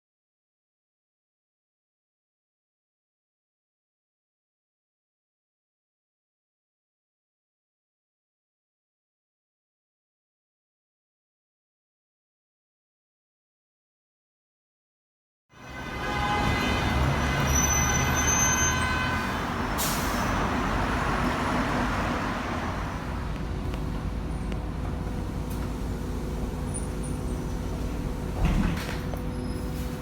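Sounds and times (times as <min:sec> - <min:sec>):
bus road noise rumble: 0:15.6 - 0:30.0.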